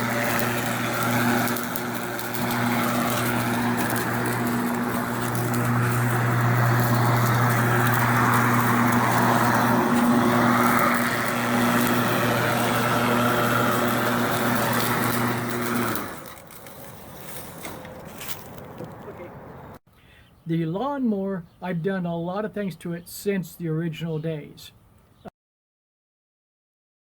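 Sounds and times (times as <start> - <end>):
electric lawnmower motor humming: 0.0 - 18.9.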